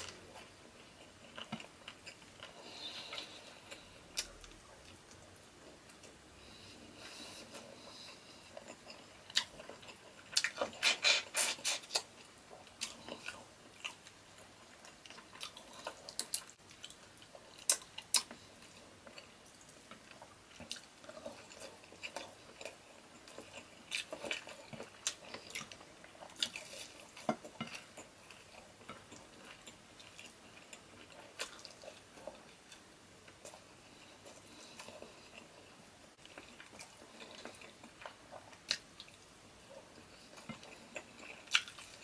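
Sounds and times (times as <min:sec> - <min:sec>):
wet chewing and mouth smacks: 0:40.3 - 0:42.0.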